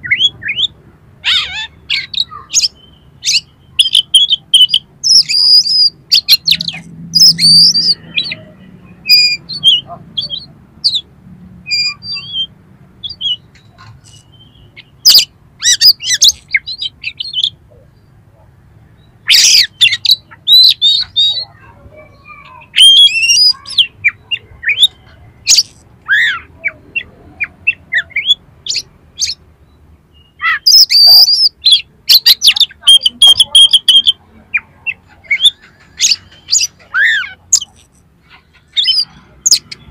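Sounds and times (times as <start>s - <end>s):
bird singing chirps and whistles: 0.0s - 8.4s, 9.0s - 11.0s, 11.7s - 17.6s, 19.2s - 21.5s, 22.6s - 27.1s, 27.7s - 29.4s, 30.1s - 34.2s.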